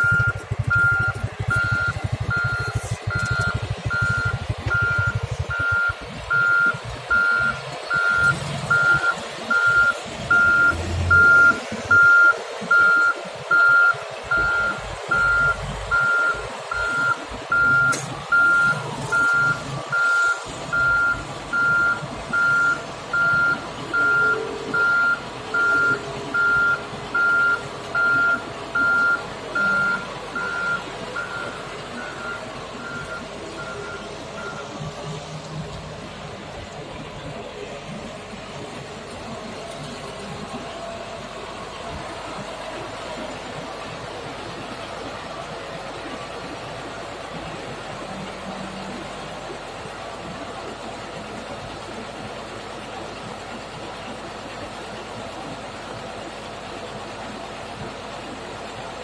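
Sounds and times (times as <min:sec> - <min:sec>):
back-up alarm beeping: 0:00.0 - 0:34.9
engine rumble: 0:00.0 - 0:59.0.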